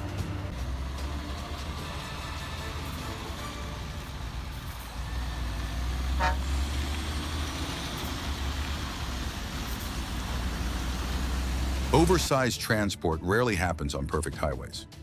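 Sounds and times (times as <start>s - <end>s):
heavy truck engine rumbling: 0.0s - 12.3s
truck horn toot: 6.1s - 6.6s.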